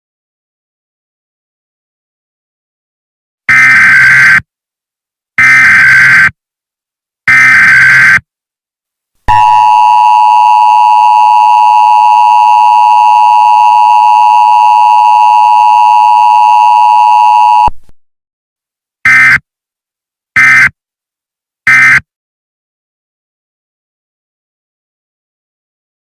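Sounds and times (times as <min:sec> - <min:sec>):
short bursts of data tones: 0:07.3 - 0:08.2, 0:19.1 - 0:19.4, 0:20.4 - 0:20.7, 0:21.7 - 0:22.0.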